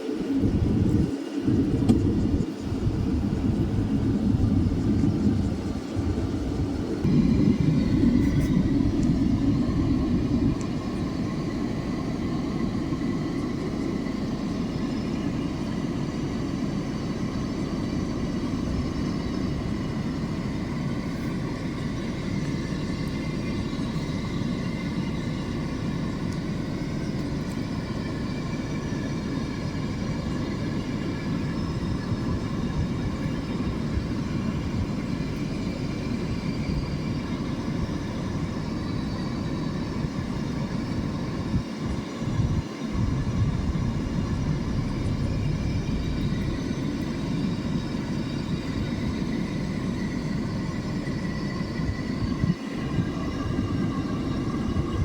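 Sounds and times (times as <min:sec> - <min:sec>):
vehicle engine idling: 0:42.4 - 0:52.3.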